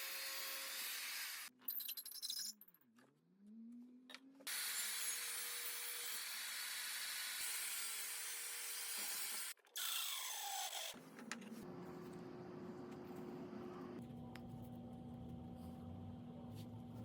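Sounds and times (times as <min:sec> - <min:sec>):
power tool cutting wood: 0:00.0 - 0:01.5, 0:04.5 - 0:11.0.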